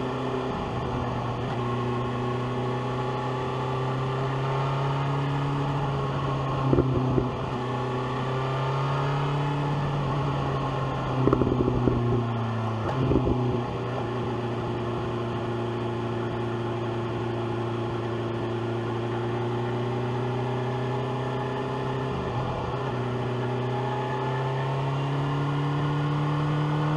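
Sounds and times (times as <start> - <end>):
motorcycle engine running: 5.2 - 7.9, 9.0 - 20.8.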